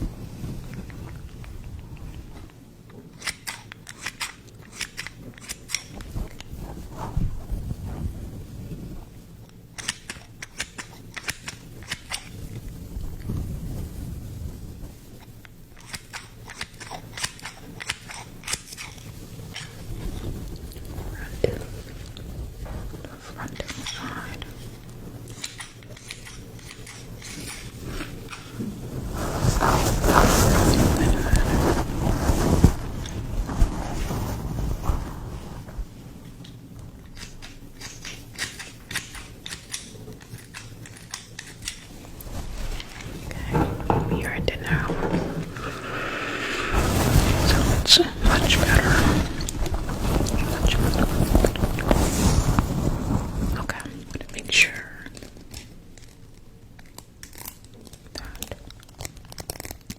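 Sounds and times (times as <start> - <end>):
scissors snipping: 3.2 - 6.5, 9.8 - 12.4, 15.8 - 19.0, 25.3 - 28.6, 37.0 - 41.9
handling rustle: 9.8 - 45.7, 46.7 - 59.9.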